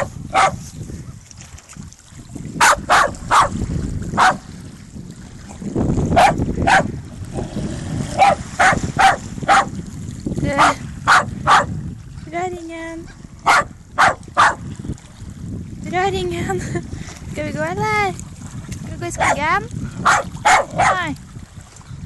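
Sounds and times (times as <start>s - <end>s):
dog barking: 0.0s - 0.6s, 2.6s - 3.5s, 4.2s - 4.4s, 6.2s - 6.9s, 8.2s - 9.7s, 10.6s - 11.7s, 13.4s - 14.6s, 19.2s - 19.4s, 20.0s - 21.0s.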